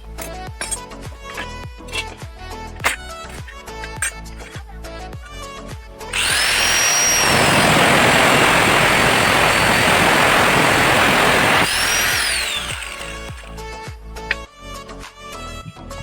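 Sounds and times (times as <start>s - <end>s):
electric motor whine: 6.1s - 13.8s.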